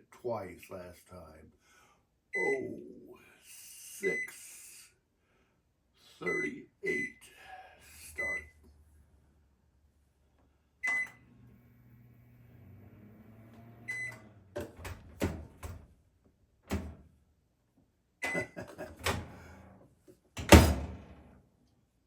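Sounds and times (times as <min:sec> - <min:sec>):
microwave beep: 0:08.2 - 0:08.6, 0:10.8 - 0:11.4, 0:12.6 - 0:15.0, 0:18.2 - 0:18.6
microwave humming: 0:10.7 - 0:17.2, 0:18.2 - 0:21.4.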